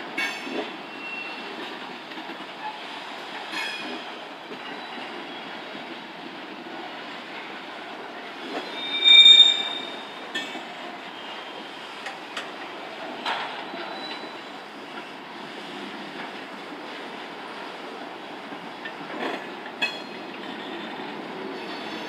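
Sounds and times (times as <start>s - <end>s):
train wheels rumbling on rail: 0.0s - 22.0s
high-pitched wheel squeal: 8.6s - 10.1s, 21.6s - 22.0s.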